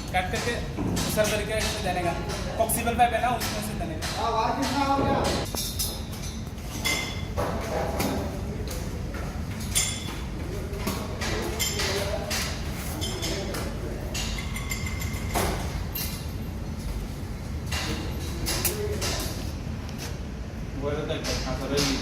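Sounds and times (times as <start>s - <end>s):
steady low hum: 0.0s - 22.0s
knocks and clinks: 11.2s - 16.4s.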